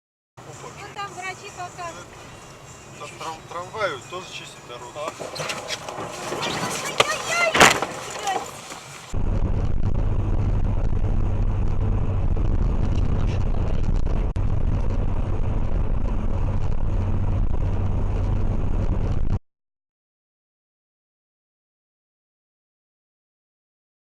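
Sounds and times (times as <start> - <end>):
car engine rumble and road noise: 0.4 - 19.4.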